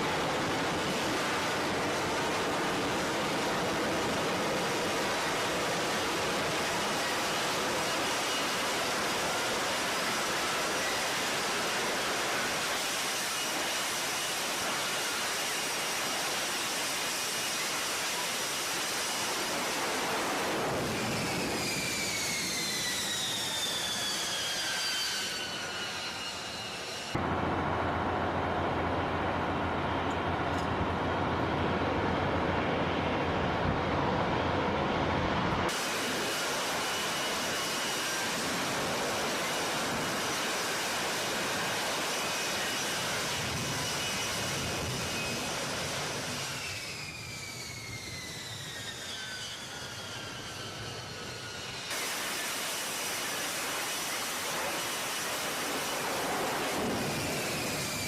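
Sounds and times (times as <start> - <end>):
jet engine roaring: 0.0 - 58.0
high engine whine: 17.6 - 40.2.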